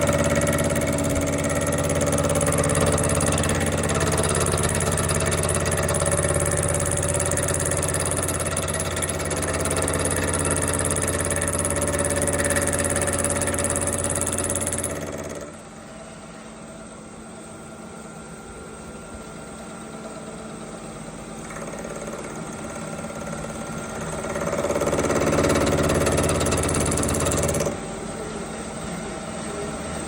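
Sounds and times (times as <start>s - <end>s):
power tool humming: 0.0s - 15.6s, 21.5s - 27.9s.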